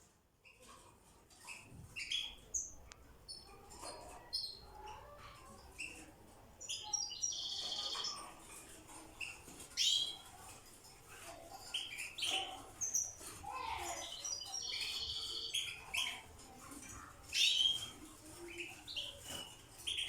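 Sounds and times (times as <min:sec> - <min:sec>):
finches chirping and twittering: 0:00.4 - 0:20.0.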